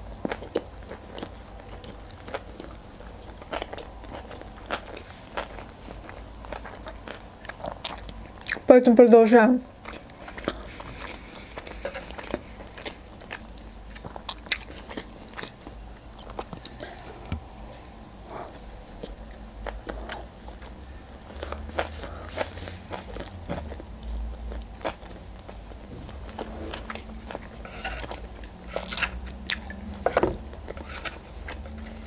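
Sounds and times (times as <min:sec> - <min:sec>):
chewing with wet mouth clicks: 0:00.2 - 0:08.7, 0:09.8 - 0:25.9, 0:26.9 - 0:32.0
faint low rumble: 0:09.7 - 0:32.0.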